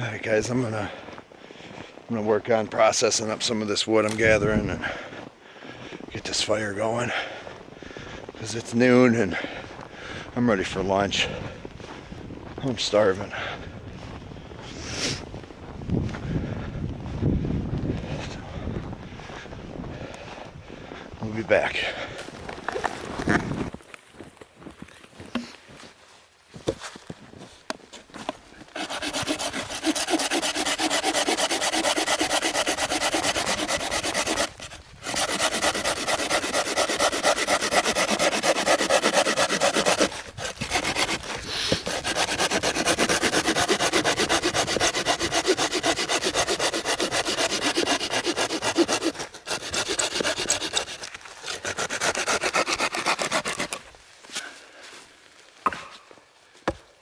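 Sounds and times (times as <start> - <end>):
hand saw cutting wood: 28.7 - 53.9.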